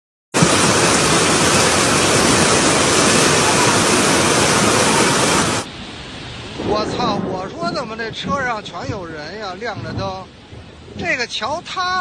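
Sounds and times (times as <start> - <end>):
floodwater rushing: 0.4 - 8.8.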